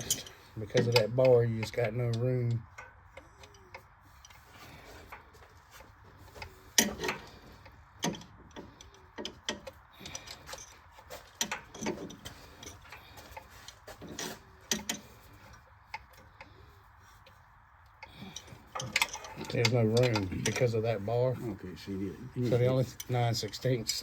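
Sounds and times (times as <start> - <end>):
wrench clinking on metal: 0.0 - 4.4.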